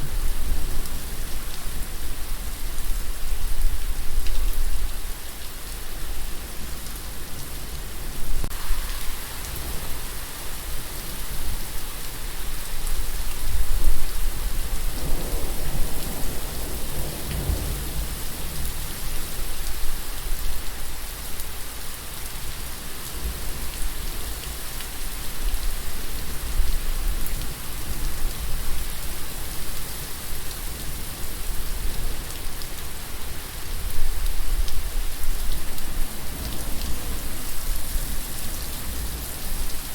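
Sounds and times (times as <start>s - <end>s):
steady rain falling: 0.0s - 39.9s
low rumble of thunder: 13.7s - 18.9s.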